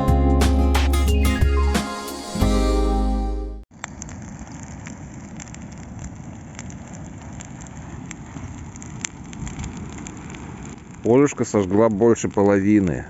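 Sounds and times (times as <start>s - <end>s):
fire crackling and popping: 3.7s - 13.0s
bonfire rushing hiss: 4.0s - 13.0s.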